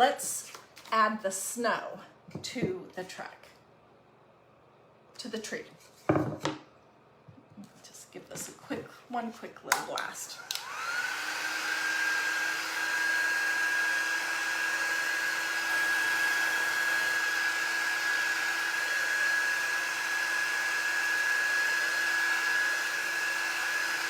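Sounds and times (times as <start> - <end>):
hot-air blower whining: 10.2 - 24.0.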